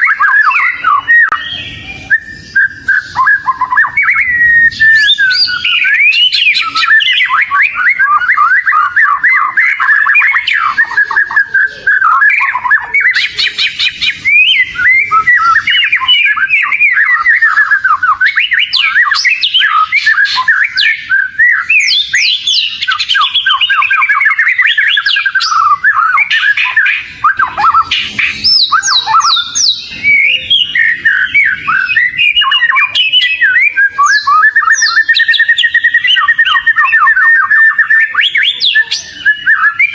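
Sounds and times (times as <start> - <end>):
songbird whistling song: 0.0 - 39.9.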